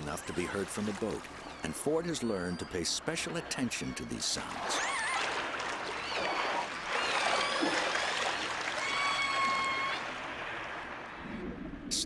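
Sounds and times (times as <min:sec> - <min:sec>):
killer whale calls: 0:04.4 - 0:11.6.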